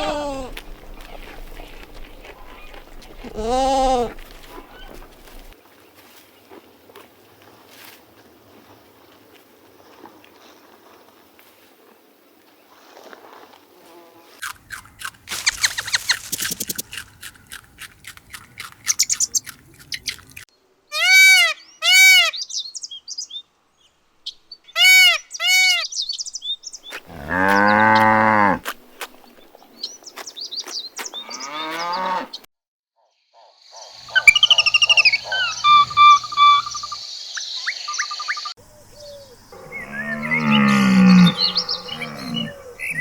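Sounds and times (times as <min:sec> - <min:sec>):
animal chirps and calls: 0:14.7 - 0:20.4, 0:33.4 - 0:43.0.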